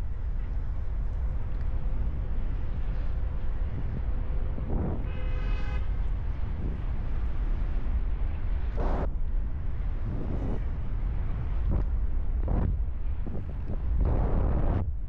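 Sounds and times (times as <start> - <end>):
wind buffeting microphone: 0.0 - 15.0
buzzy tone: 8.8 - 9.1.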